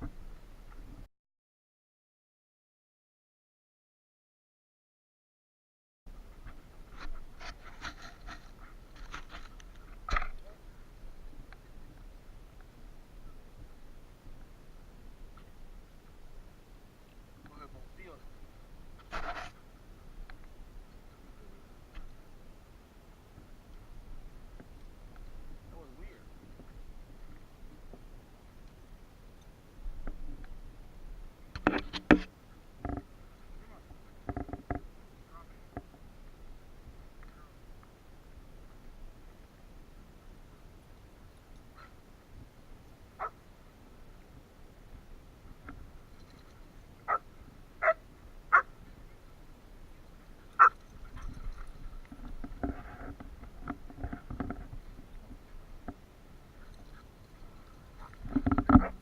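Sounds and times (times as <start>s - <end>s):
soft rough dog noises: 41.5s - 42.5s, 46.0s - 59.0s
dogs barking: 47.8s - 48.7s, 50.6s - 51.2s.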